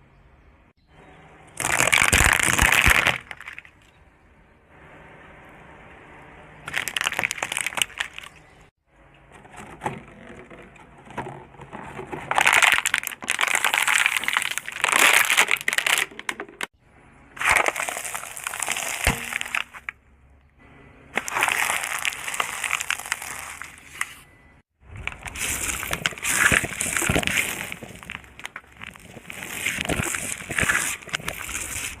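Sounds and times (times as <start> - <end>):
things being crushed and crunching: 1.6 - 3.9, 6.7 - 8.5, 9.4 - 16.7, 17.4 - 20.0, 21.2 - 32.0.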